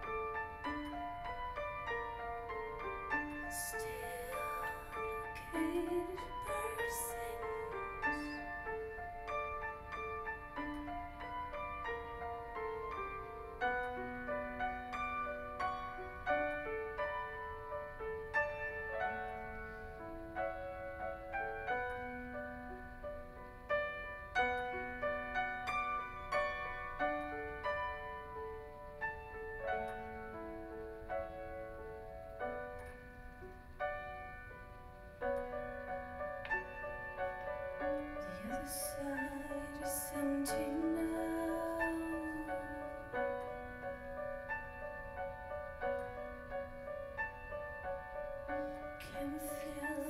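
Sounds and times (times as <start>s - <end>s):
slow gentle piano: 0.0s - 50.0s
person singing a ballad: 3.5s - 8.9s, 38.2s - 43.4s, 49.0s - 50.0s.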